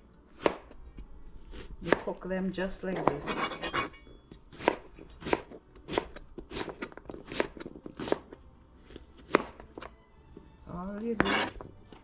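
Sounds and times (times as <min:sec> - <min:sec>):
knife chopping on cutting board: 0:00.4 - 0:00.7, 0:03.0 - 0:03.9, 0:04.5 - 0:08.4, 0:09.2 - 0:09.9, 0:11.2 - 0:11.7.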